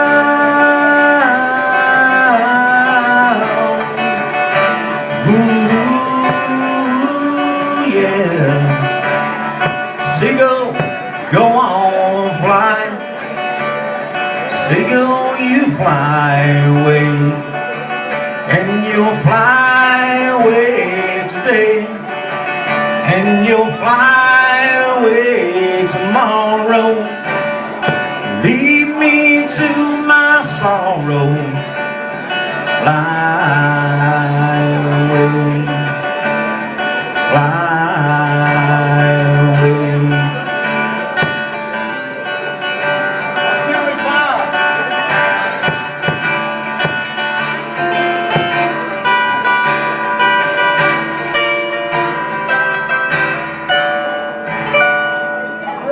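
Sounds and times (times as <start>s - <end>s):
man singing: 0.0s - 42.3s
acoustic guitar: 0.0s - 55.9s.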